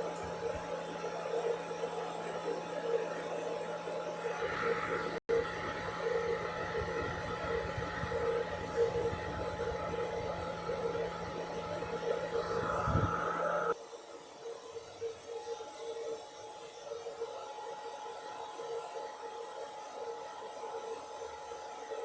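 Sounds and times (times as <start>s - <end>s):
steady machine hum: 4.1s - 13.8s
low pulsing tone: 8.8s - 13.7s.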